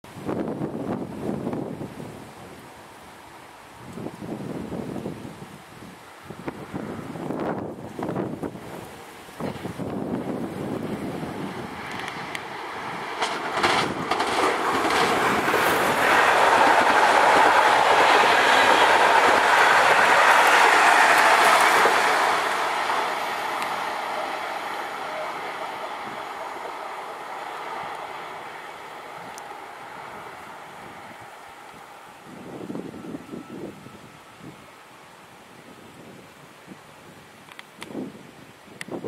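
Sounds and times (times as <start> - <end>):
train wheels rumbling on rails: 6.2 - 34.9
wheels clicking over rail joints: 9.4 - 26.4.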